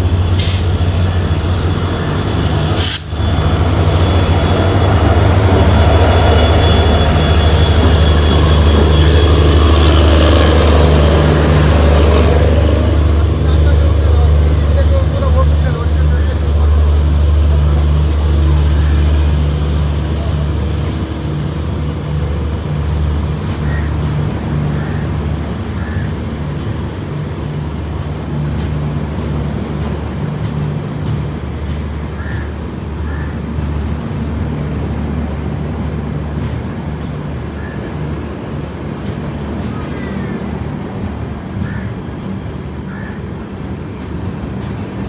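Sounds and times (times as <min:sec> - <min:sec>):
train locomotive low drone: 0:00.0 - 0:45.0
faint bird calls: 0:25.8 - 0:26.2, 0:42.9 - 0:43.3.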